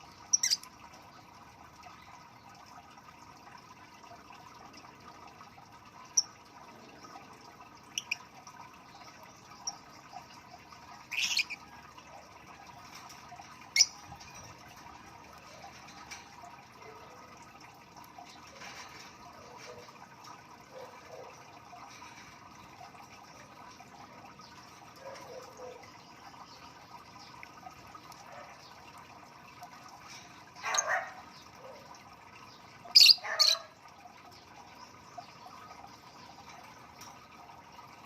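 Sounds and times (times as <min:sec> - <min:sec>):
lovebirds chirping softly: 0:00.0 - 0:02.7.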